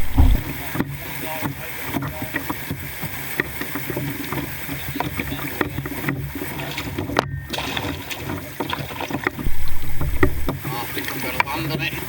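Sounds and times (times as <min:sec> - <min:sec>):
low rumble: 0:00.0 - 0:00.6, 0:09.5 - 0:10.5
paddle strokes in water: 0:00.0 - 0:12.0
water drips and splashes: 0:00.0 - 0:12.0.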